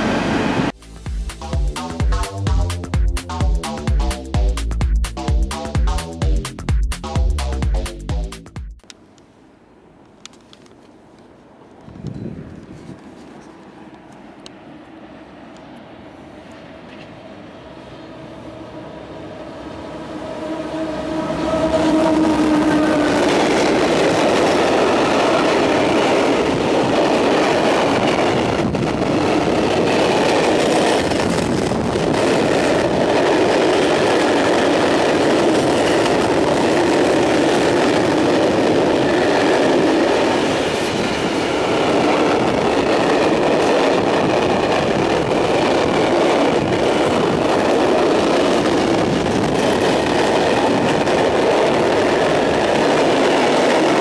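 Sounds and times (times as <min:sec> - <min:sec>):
train wheels rumbling and rattling: 0:20.2 - 0:54.0.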